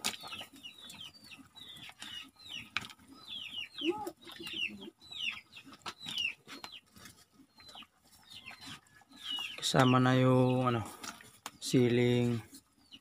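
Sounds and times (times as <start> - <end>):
low cluck: 0.0 - 10.0
chicks peeping: 0.0 - 13.0.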